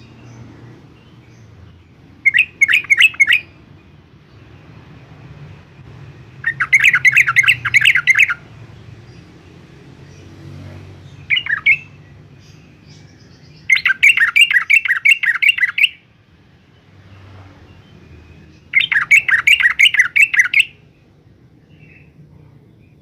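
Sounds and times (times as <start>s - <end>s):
bird singing quick repeated notes: 0.0s - 3.6s, 6.2s - 8.4s, 11.1s - 16.0s, 17.7s - 20.8s
bird call: 2.2s - 3.6s, 6.4s - 8.4s, 11.3s - 12.0s, 13.0s - 16.0s, 18.7s - 20.8s.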